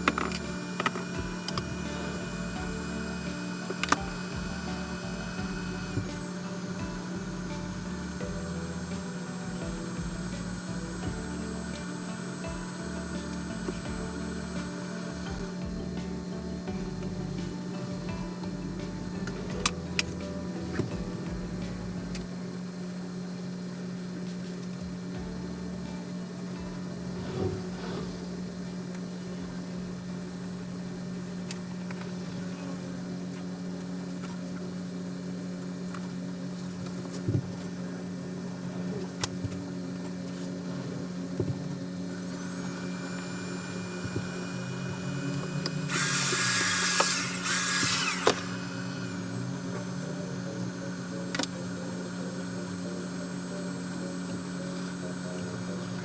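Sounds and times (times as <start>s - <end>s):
high whirring burst: 0.0s - 16.8s, 26.8s - 29.5s, 42.0s - 56.0s
low mechanical hum: 0.0s - 56.0s.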